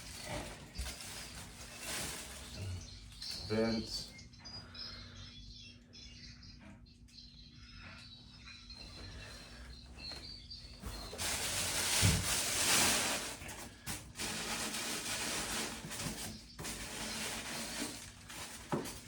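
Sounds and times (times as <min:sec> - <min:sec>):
packing wrap rustling: 0:00.0 - 0:03.4, 0:10.8 - 0:19.0.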